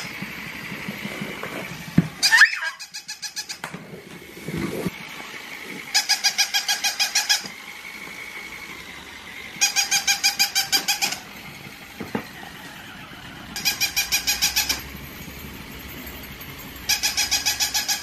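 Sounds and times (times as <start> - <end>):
toy puppy electronic yapping: 2.2 - 3.7, 5.9 - 7.6, 9.5 - 11.4, 13.5 - 14.9, 16.8 - 18.0.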